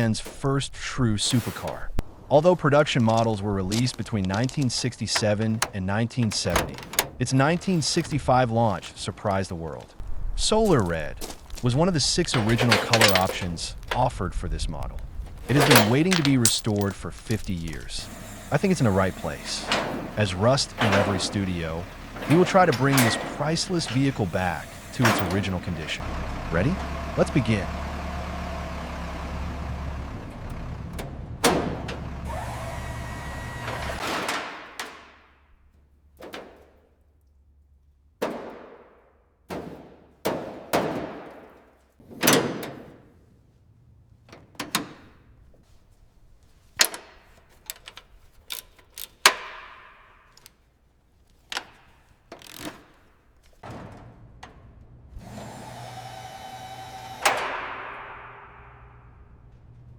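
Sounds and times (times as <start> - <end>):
knocks and clunks: 0.0 - 2.1, 3.7 - 9.2, 10.0 - 36.9, 38.2 - 43.4, 44.1 - 59.9.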